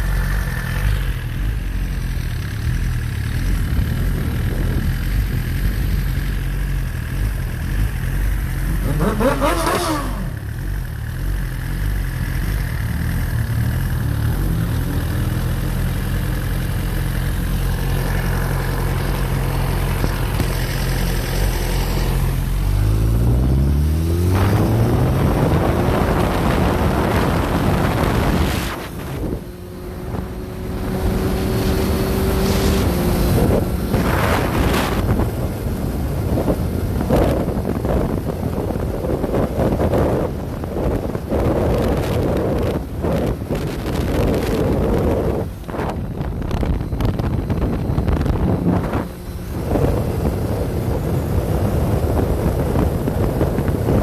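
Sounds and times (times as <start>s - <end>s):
motorcycle engine revving: 0.0s - 54.0s
wind rushing over microphone: 3.5s - 10.6s, 13.3s - 54.0s.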